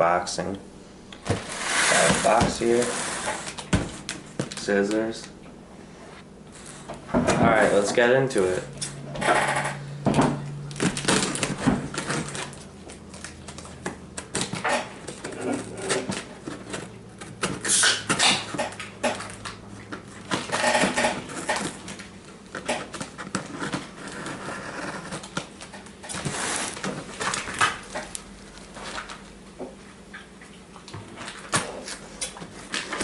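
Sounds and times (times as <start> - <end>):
cardboard box scrapes and rustles: 1.4 - 3.5.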